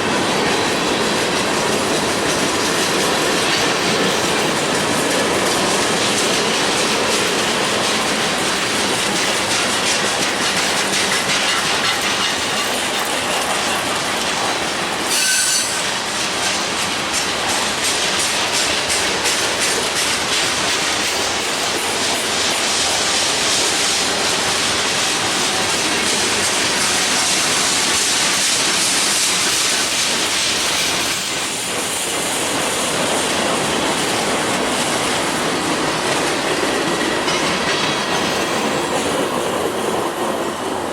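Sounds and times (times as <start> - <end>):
freight train rolling past: 0.0 - 40.9
wheels clattering over rail joints: 0.5 - 40.6
high wheel squeal: 15.1 - 16.0.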